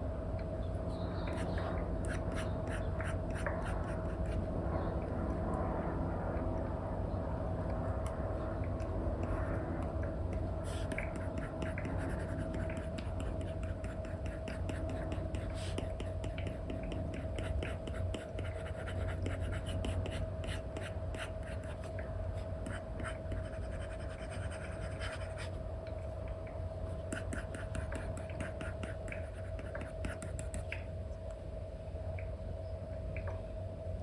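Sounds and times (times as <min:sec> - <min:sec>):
faint steady hum: 0:00.0 - 0:34.0
stylus scratching and tapping: 0:01.3 - 0:04.4, 0:07.6 - 0:25.6, 0:26.9 - 0:30.9.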